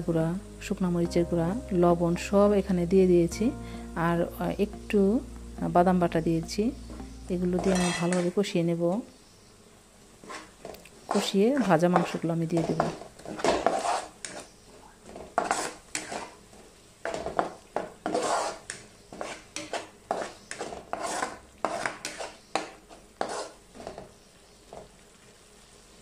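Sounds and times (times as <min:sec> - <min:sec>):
paste frying: 0:00.0 - 0:08.5, 0:09.7 - 0:26.0
wooden spatula scraping a pan: 0:07.5 - 0:08.3, 0:10.2 - 0:24.9.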